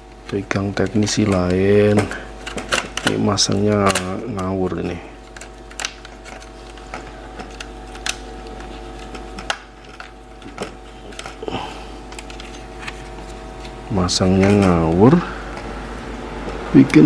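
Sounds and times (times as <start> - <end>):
low electrical hum: 0.0 - 17.0
laptop parts clicking and tapping: 2.4 - 4.5, 5.2 - 11.5.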